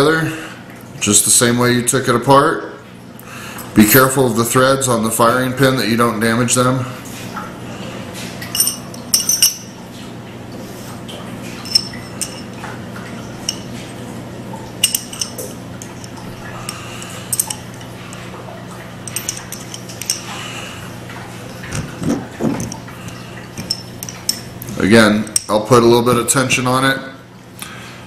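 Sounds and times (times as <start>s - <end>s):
steady low hum: 0.0s - 28.0s
metal rifle parts clicking: 14.8s - 16.2s, 17.3s - 17.9s, 19.1s - 20.2s.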